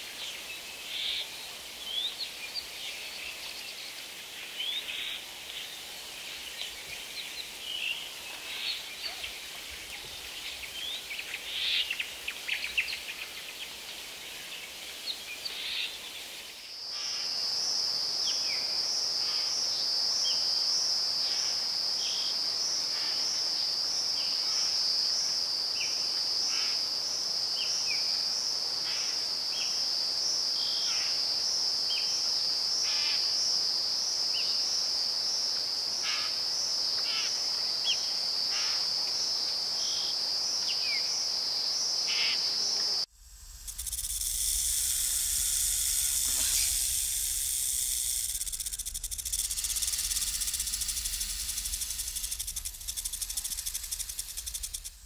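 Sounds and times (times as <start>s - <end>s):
high insect chorus: 0.0s - 55.0s.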